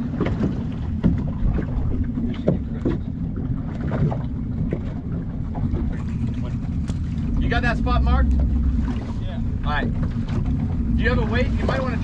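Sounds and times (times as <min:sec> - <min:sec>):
boat engine rumbling: 0:00.0 - 0:12.0
water splashing against hull: 0:00.0 - 0:12.0.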